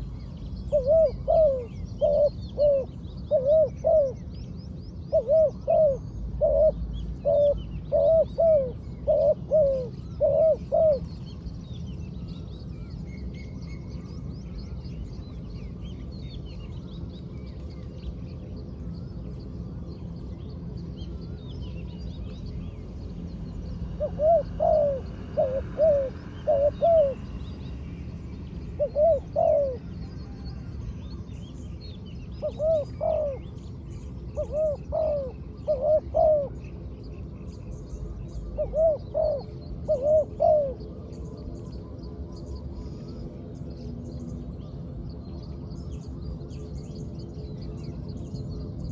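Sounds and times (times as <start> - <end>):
dove cooing: 0.6 - 4.3, 5.1 - 11.3, 23.8 - 27.4, 28.7 - 30.6, 32.4 - 33.6, 34.3 - 36.7, 38.4 - 41.0.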